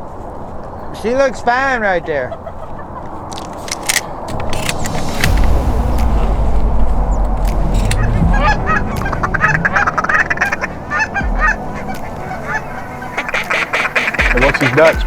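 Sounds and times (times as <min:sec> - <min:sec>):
geese honking: 0:00.8 - 0:15.0
low rumble: 0:03.9 - 0:13.2.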